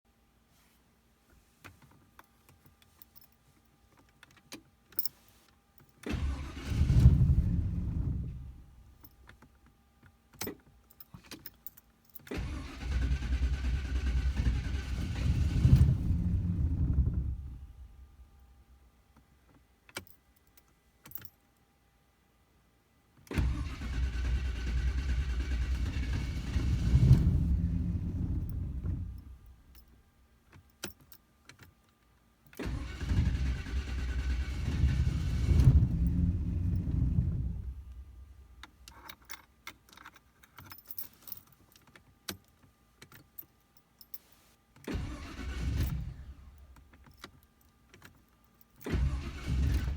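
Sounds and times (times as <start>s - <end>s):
engine cranking: 6.1s - 8.0s, 12.3s - 16.5s, 23.4s - 28.9s, 32.6s - 37.8s, 44.9s - 46.3s, 48.8s - 49.9s.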